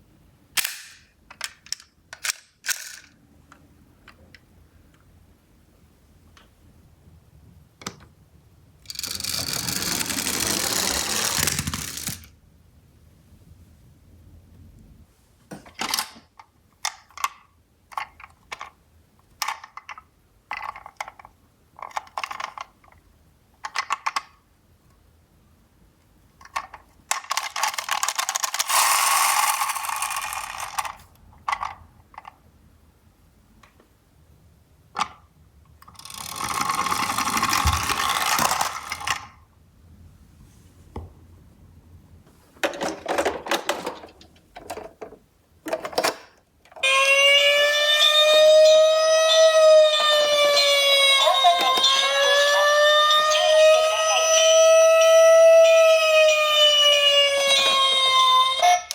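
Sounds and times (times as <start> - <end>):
toy cars clicking and clattering: 0.6 - 3.2, 8.8 - 12.4, 16.8 - 23.0, 23.6 - 24.4, 26.4 - 32.4, 35.8 - 39.4, 48.0 - 58.9
small wheels rolling down cardboard: 8.9 - 12.3, 36.0 - 39.2.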